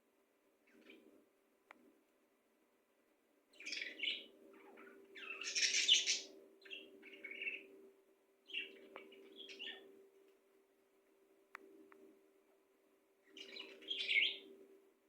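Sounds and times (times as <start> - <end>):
bird chirping: 0.6 - 1.1, 3.5 - 7.8, 8.4 - 10.0, 13.2 - 14.6.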